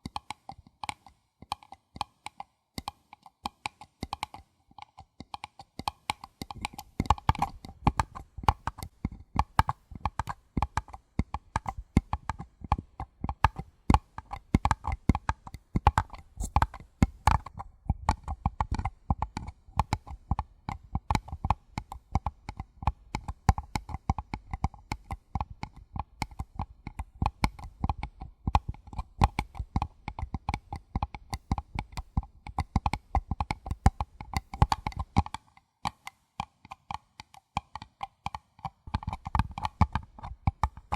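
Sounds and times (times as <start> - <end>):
fingers tapping paper cup: 0.0 - 40.9.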